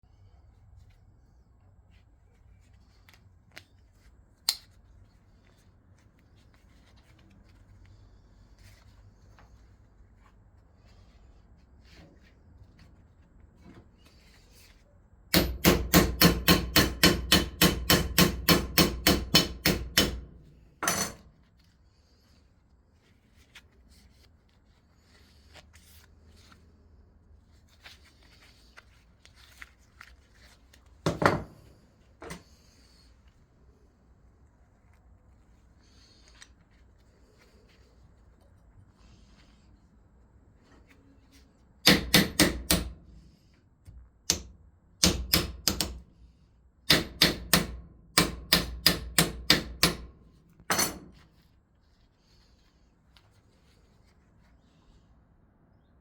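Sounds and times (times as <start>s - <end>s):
hammer striking metal: 15.3s - 21.2s, 41.8s - 43.0s, 46.9s - 50.1s.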